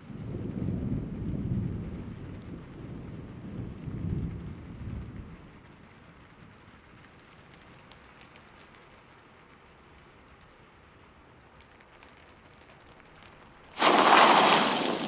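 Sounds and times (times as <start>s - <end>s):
steady rain: 0.0s - 12.7s, 13.8s - 15.0s
thunder rumbling: 13.8s - 15.0s.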